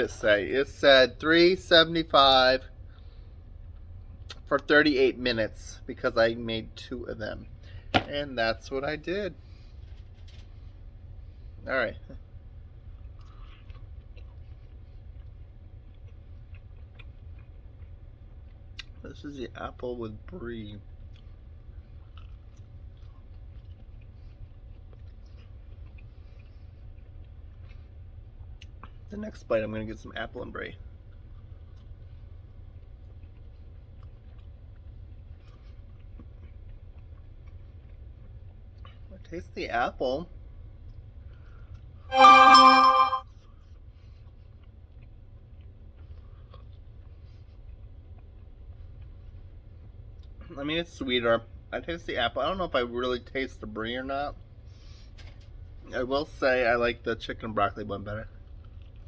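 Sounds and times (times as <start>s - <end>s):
low steady hum: 0.0s - 39.1s
faint chewing: 12.1s - 19.1s, 19.7s - 29.1s, 30.8s - 39.3s, 44.1s - 50.5s, 58.3s - 59.0s.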